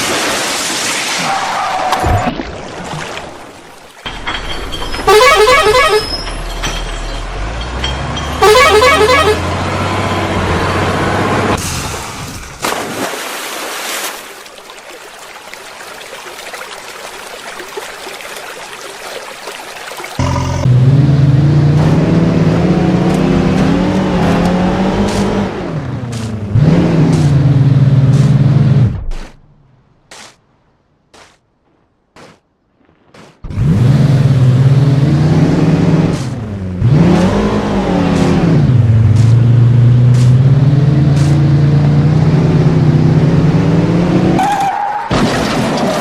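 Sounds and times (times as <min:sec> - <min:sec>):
vehicle horn tooting short notes: 0:05.0 - 0:06.2, 0:08.4 - 0:09.4
truck engine revving: 0:07.2 - 0:11.6, 0:20.2 - 0:29.1, 0:33.5 - 0:44.4
low engine drone: 0:20.2 - 0:29.1.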